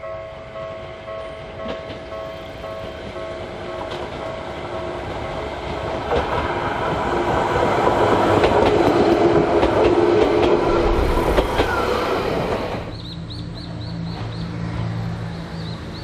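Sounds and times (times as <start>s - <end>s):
wheels clicking over rail joints: 5.0s - 12.9s.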